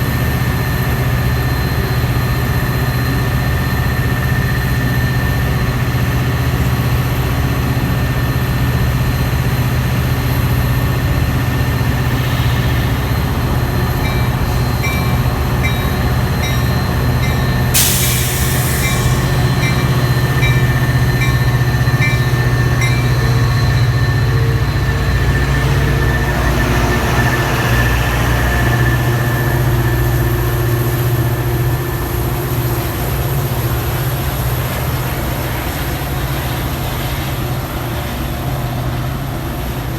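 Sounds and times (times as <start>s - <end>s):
diesel locomotive drone: 0.0s - 39.9s
high-pitched pinging: 11.9s - 25.1s
short sharp air hiss: 17.8s - 20.2s.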